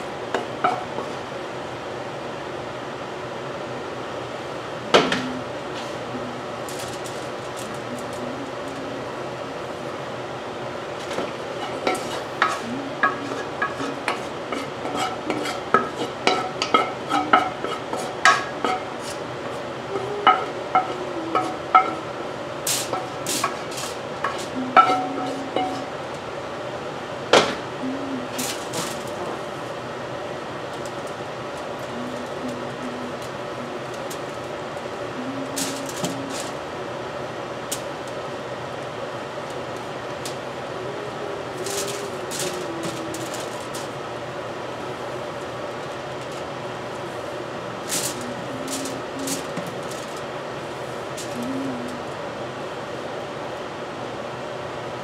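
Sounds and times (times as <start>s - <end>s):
low background noise: 0.0s - 55.0s
wooden spoon scraping a wok: 11.5s - 19.6s, 22.7s - 25.9s.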